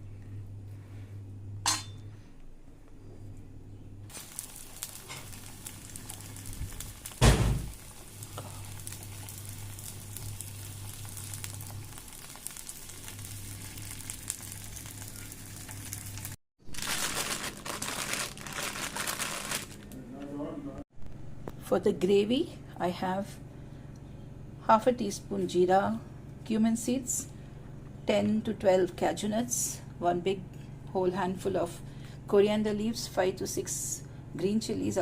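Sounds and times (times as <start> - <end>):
cutlets sizzling in a pan: 4.1 - 16.4.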